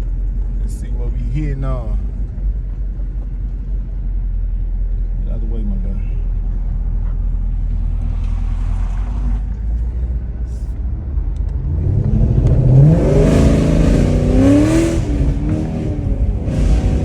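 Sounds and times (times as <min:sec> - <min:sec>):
car engine revving: 0:07.0 - 0:17.0.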